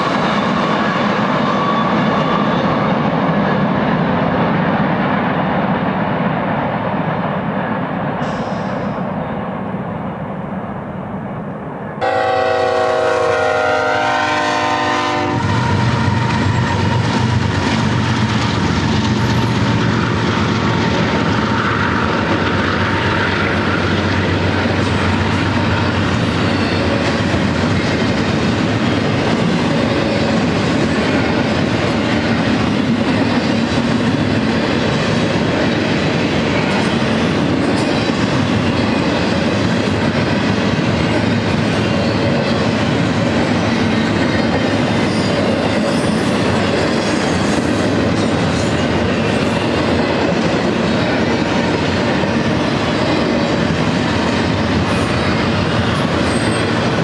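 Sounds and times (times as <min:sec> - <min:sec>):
train wheels rolling on rails: 0:00.0 - 0:57.0
locomotive air horn chord: 0:12.0 - 0:15.6.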